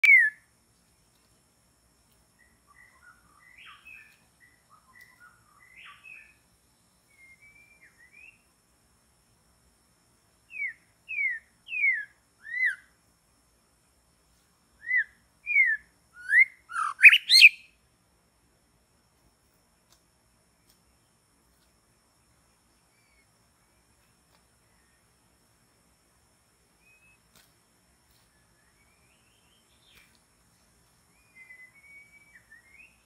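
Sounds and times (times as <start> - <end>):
loud down-slurred bird whistles: 0.0 - 0.4, 14.8 - 17.7, 31.2 - 33.0
soft bird chirps: 0.0 - 1.4, 2.1 - 8.6, 10.4 - 13.0, 14.3 - 17.8, 19.8 - 25.6, 26.7 - 33.0.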